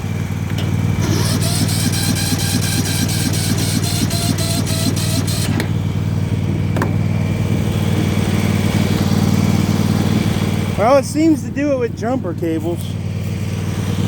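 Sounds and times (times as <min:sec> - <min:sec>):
small mower engine running: 0:00.0 - 0:14.0
starter cranking mower engine: 0:00.0 - 0:14.0.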